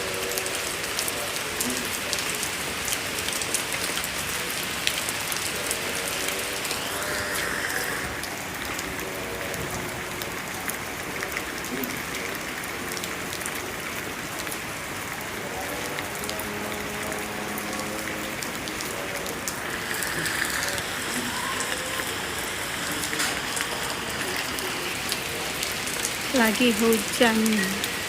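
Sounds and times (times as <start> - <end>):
rain drops hitting hard surface: 0.0 - 28.0.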